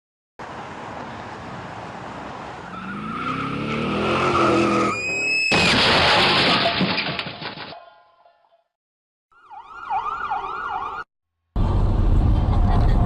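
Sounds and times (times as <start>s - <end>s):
loud crash: 5.4s - 7.7s.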